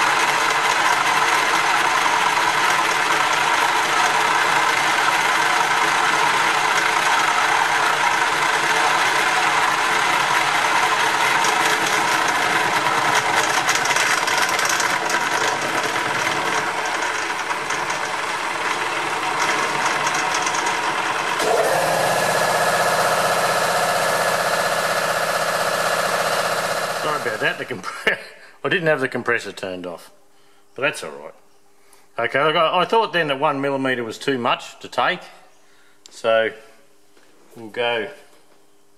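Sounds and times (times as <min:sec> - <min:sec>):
air compressor humming: 0:00.0 - 0:28.6
milling machine cutting metal: 0:01.4 - 0:27.7.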